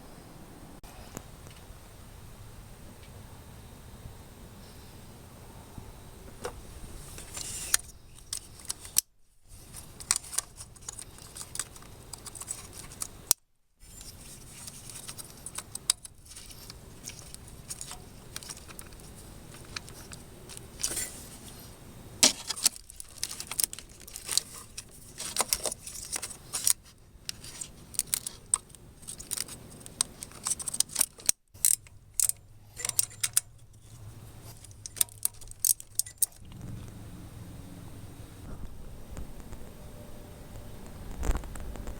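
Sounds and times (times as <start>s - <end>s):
metal tools clinking: 22.2s - 36.4s.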